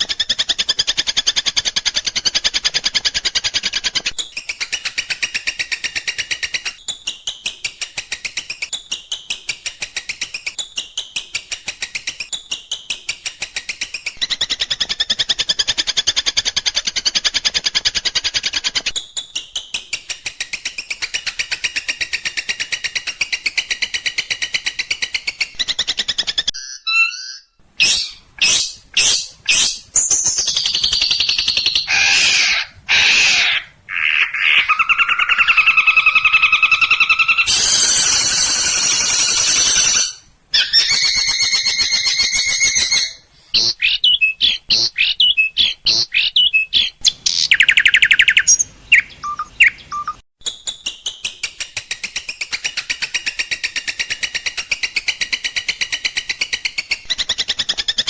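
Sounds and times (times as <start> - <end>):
shrike calls and trills: 26.6 - 50.2.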